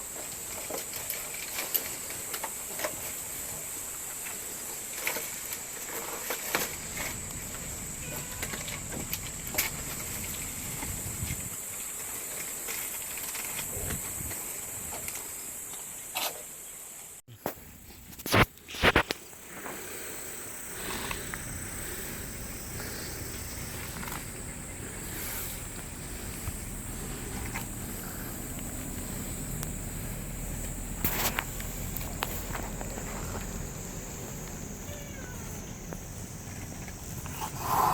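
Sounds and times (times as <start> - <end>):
outdoor background noise: 0.0 - 37.9
constant high hum: 4.9 - 15.5, 17.3 - 37.9
cat hissing: 18.3 - 31.9, 34.8 - 35.8.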